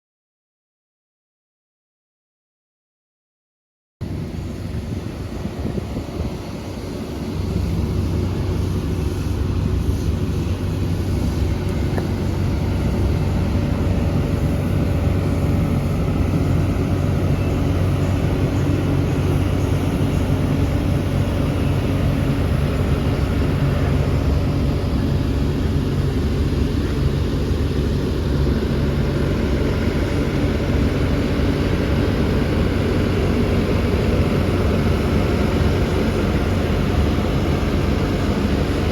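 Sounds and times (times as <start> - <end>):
excavator diesel engine running: 4.0 - 38.9.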